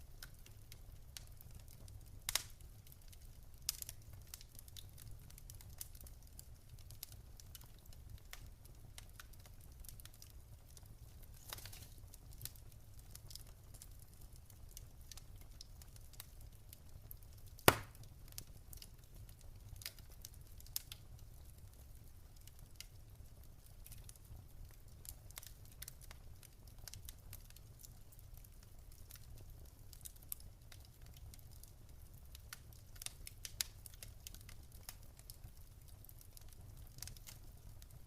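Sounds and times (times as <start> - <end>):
wood fire crackling: 0.0 - 38.0
sharp loud fire pop: 17.6 - 18.0.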